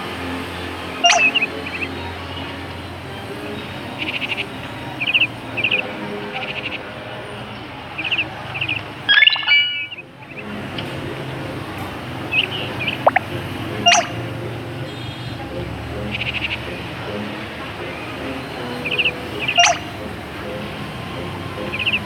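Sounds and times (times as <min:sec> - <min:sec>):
small bird chirping: 0:01.0 - 0:01.8, 0:08.0 - 0:10.0, 0:13.8 - 0:14.2, 0:18.9 - 0:19.9
loud bird call: 0:01.0 - 0:02.6, 0:04.0 - 0:10.5, 0:13.8 - 0:14.2, 0:18.5 - 0:20.0.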